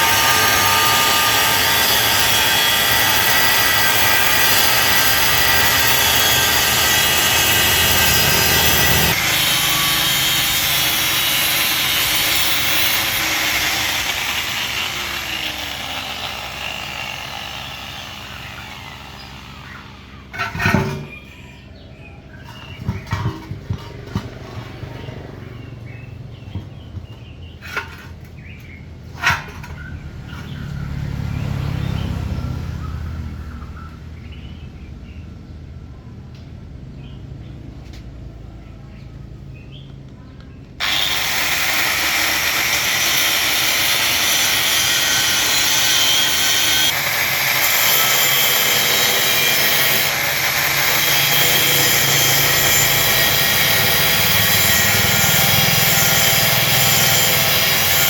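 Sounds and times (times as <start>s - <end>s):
power tool running: 0.0s - 21.2s, 40.8s - 58.0s.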